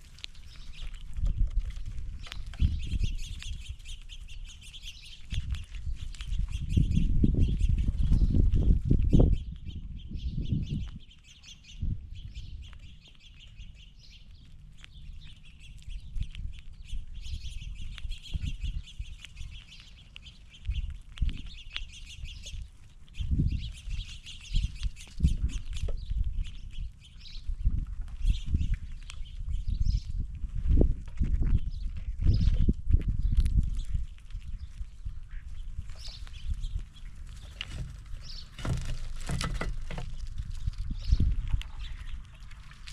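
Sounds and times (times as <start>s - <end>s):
small birds chirping: 0.0s - 42.9s
low thumps and rustles: 27.5s - 42.9s.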